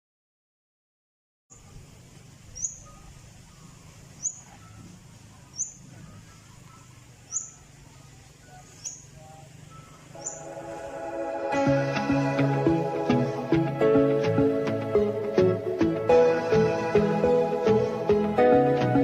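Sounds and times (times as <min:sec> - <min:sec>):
bird chirping: 0:01.5 - 0:18.3
faint background noise: 0:01.5 - 0:19.0.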